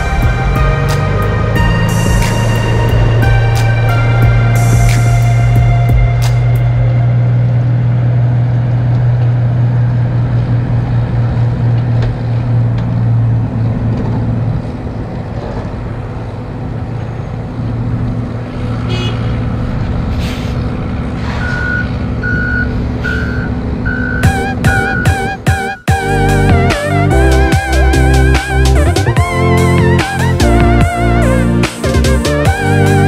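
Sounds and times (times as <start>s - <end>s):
truck diesel engine droning: 0.0s - 33.0s
backup alarm beeping: 21.4s - 26.0s.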